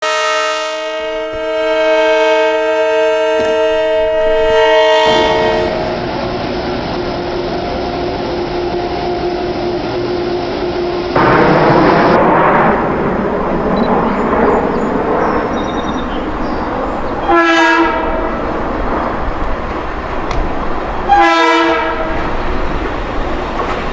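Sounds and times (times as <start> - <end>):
locomotive air horn chord: 0.0 - 6.1, 16.0 - 19.2, 20.2 - 22.3
passing train noise: 0.0 - 23.9.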